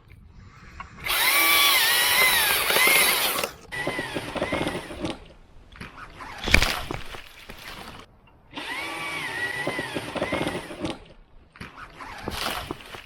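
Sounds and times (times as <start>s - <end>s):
electric chainsaw cutting wood: 1.0s - 5.2s, 8.5s - 11.1s, 12.1s - 13.0s.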